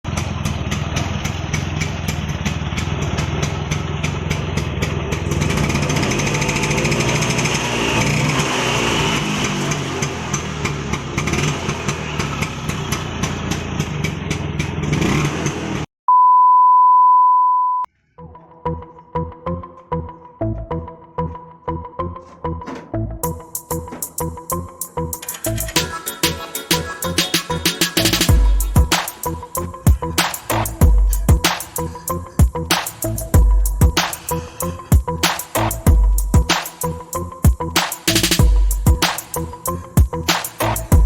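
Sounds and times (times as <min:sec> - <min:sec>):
scooter engine revving: 0:00.0 - 0:15.9
steady beep tone: 0:16.1 - 0:17.9, 0:24.8 - 0:32.6.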